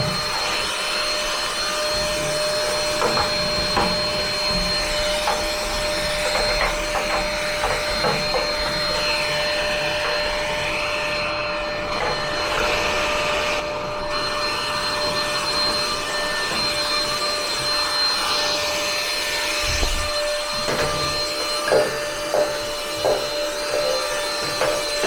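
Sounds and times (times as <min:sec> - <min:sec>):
vacuum cleaner whining: 0:00.0 - 0:25.0.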